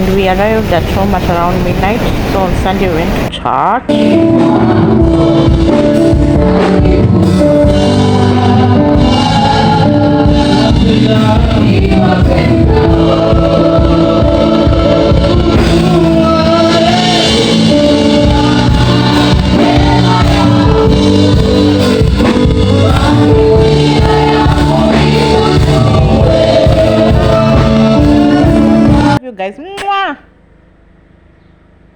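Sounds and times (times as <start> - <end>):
band playing a steady beat: 3.9 - 29.2
gospel choir singing: 3.9 - 29.2.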